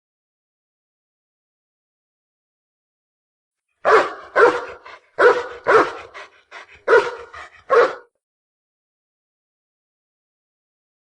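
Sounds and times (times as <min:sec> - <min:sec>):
dog barking: 0:03.8 - 0:08.2.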